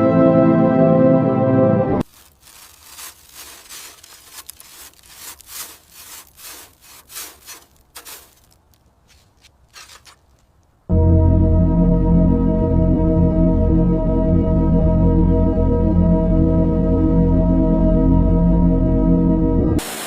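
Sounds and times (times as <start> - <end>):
hand rasping on a surface: 2.2 - 10.2.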